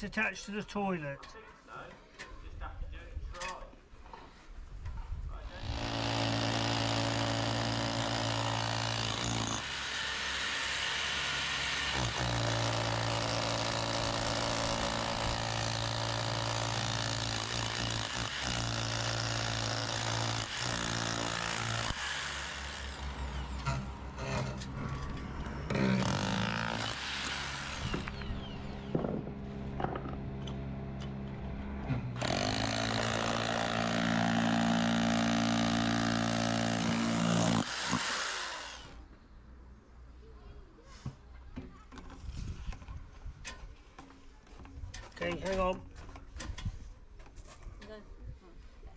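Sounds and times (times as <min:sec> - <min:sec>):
power drill boring through stone: 0:05.6 - 0:23.8, 0:25.7 - 0:28.6, 0:32.2 - 0:39.0.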